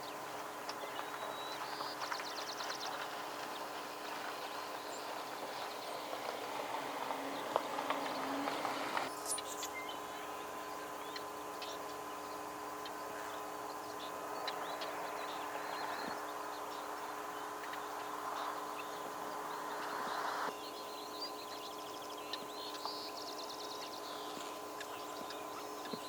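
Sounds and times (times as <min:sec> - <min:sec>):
faint constant hum: 0:00.0 - 0:26.0
small birds chirping: 0:00.0 - 0:26.0
steady background hiss: 0:00.0 - 0:26.0.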